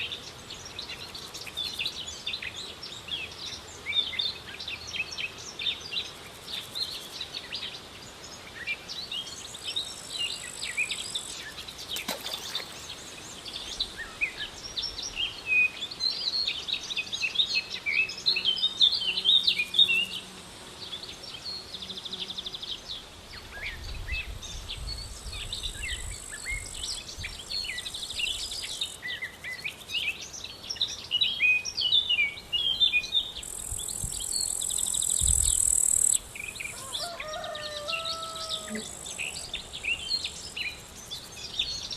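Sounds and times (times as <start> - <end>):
high insect buzz: 9.4 - 13.9, 17.9 - 22.8, 25.0 - 30.1, 33.2 - 41.9
small birds chirping: 23.7 - 41.9.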